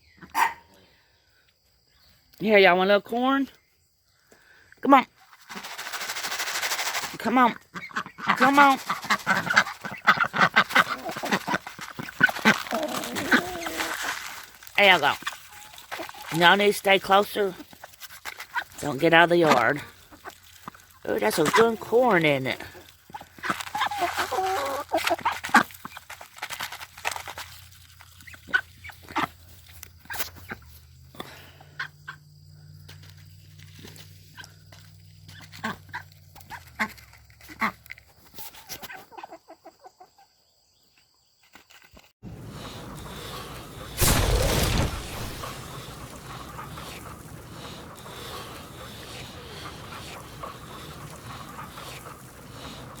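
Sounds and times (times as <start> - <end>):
ducks and chickens calling: 7.6 - 14.0, 22.4 - 25.9, 38.8 - 40.3, 42.3 - 53.0
birds pecking clicks: 42.3 - 53.0.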